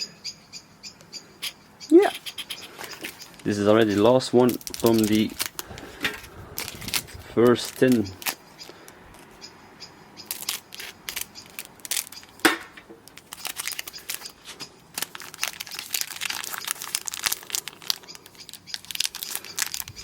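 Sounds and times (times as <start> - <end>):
foil wrapper crinkling and tearing: 2.7 - 8.8, 10.3 - 20.0.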